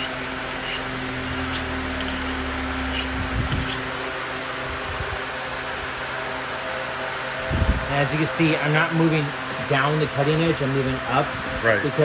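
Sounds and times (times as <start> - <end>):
knife drawn along ceramic rod: 0.0 - 3.9
fan hum: 0.0 - 12.0.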